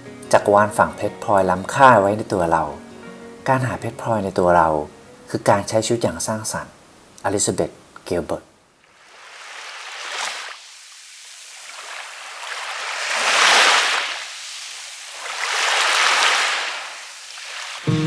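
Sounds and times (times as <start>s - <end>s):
waves breaking on beach: 8.8s - 18.0s.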